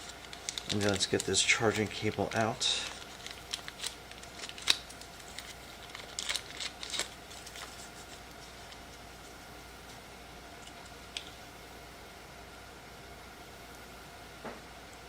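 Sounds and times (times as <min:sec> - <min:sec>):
packaging rustling: 0:00.0 - 0:09.5.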